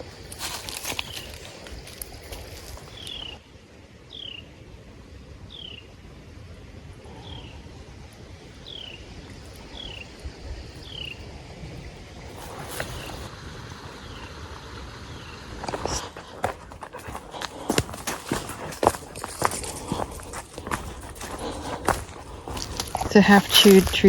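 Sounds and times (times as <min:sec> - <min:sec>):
crackle: 0:00.0 - 0:03.4, 0:15.6 - 0:24.0.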